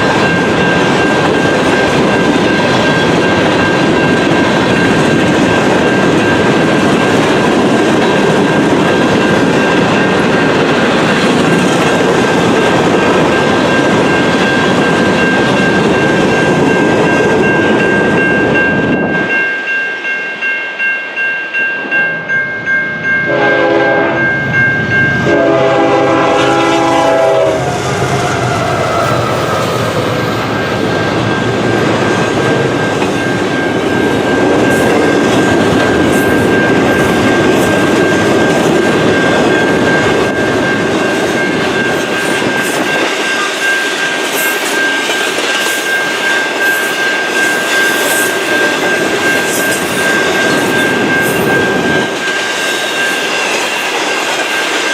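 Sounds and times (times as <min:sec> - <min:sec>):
train wheels rumbling on rail: 0:00.0 - 0:20.5, 0:21.1 - 0:54.9
train horn blasts: 0:23.3 - 0:24.3, 0:25.2 - 0:27.8.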